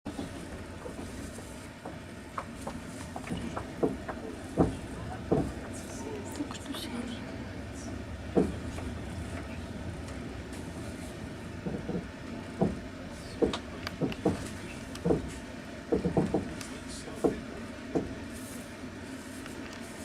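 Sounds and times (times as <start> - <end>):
wheels clacking: 0.1 - 18.2
train rumbling on rails: 0.1 - 20.0.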